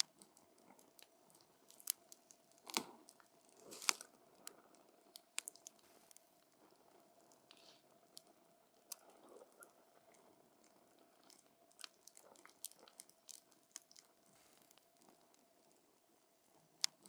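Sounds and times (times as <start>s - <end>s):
campfire crackling and popping: 0.0s - 9.1s
soft hiss of fire: 0.0s - 17.0s.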